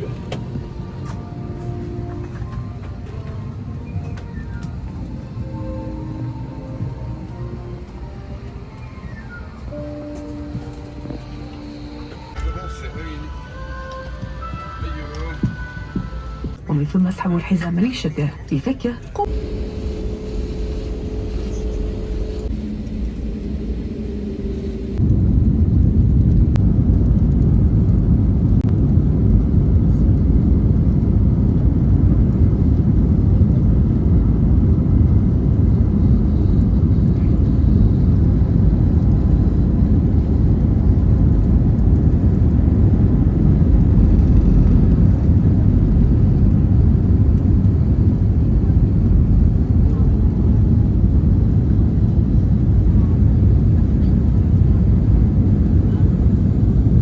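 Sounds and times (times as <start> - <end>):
faint steady hum: 0.0 - 57.0
jet engines rumbling: 0.0 - 57.0.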